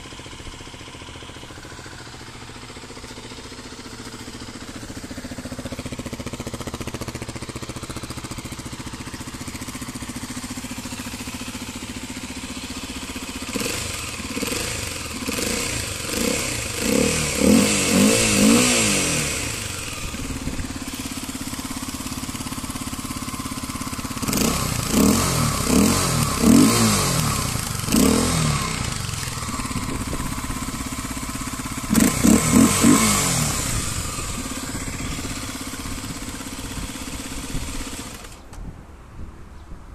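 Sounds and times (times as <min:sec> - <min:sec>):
motorcycle engine idling and revving: 0:00.0 - 0:39.6.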